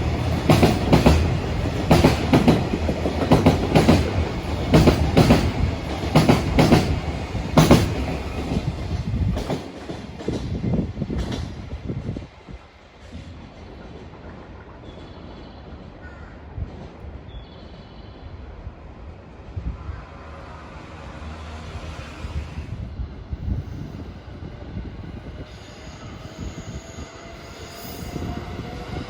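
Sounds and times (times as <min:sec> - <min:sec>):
train wheels clacking on rails: 0:00.0 - 0:12.3
train rumble: 0:00.0 - 0:29.0.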